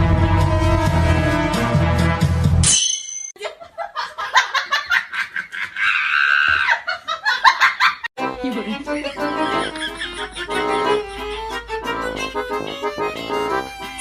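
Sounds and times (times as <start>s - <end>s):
music: 0.0s - 2.6s, 8.2s - 14.0s
people laughing: 3.4s - 8.1s, 8.7s - 11.8s.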